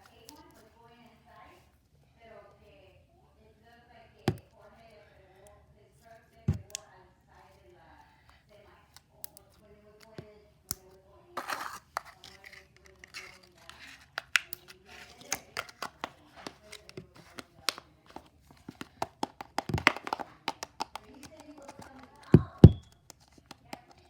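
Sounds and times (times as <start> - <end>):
crinkly rustle: 11.4 - 18.7.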